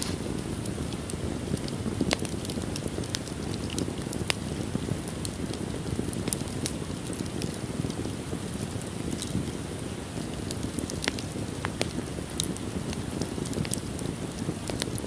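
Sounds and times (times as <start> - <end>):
low rush of flames: 0.0 - 15.0
wood crackling and popping: 0.0 - 15.0.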